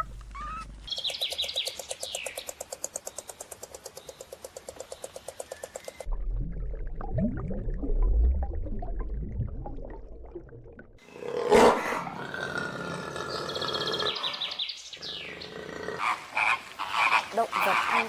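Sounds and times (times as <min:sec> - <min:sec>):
large animal roaring: 0:11.2 - 0:16.4.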